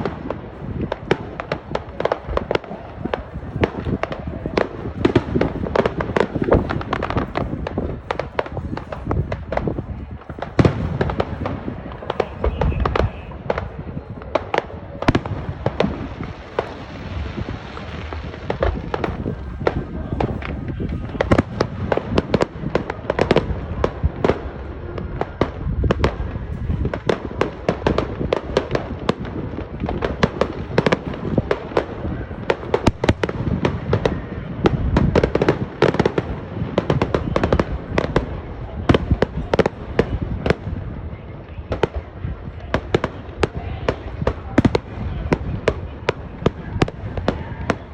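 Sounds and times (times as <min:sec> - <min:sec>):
low rumbling boom: 0:00.0 - 0:24.4
fireworks bangs and crackles: 0:00.0 - 0:47.9.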